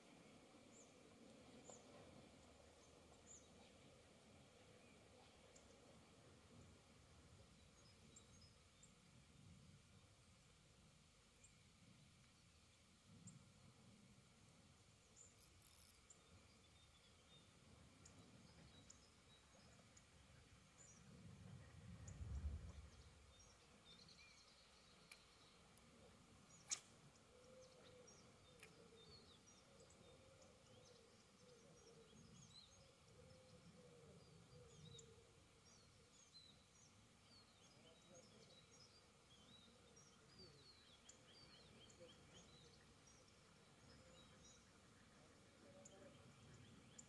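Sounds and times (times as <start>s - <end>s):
small birds chirping: 14.7s - 47.0s
low rumble: 21.4s - 23.2s
sharp click: 26.6s - 26.9s.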